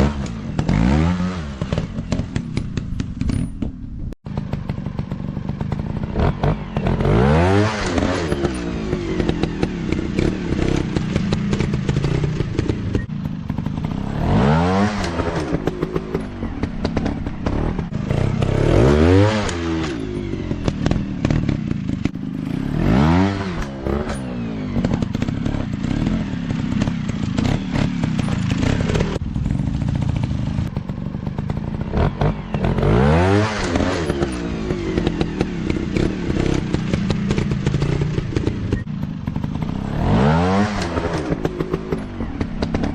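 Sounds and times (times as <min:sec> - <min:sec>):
dirt bike engines revving: 0:04.3 - 0:42.9.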